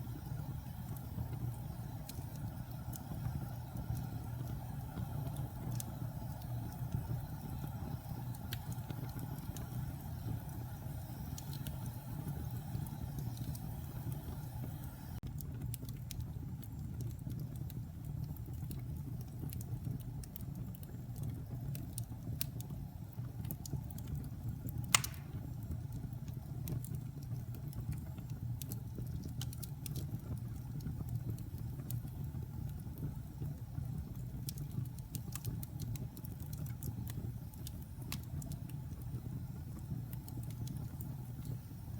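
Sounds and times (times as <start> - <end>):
wood fire crackling: 0.0 - 41.9
sharp loud pop: 25.0 - 25.4.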